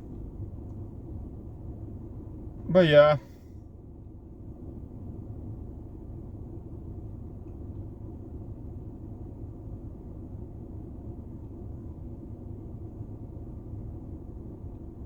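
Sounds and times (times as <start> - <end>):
car interior road rumble: 2.6 - 3.3.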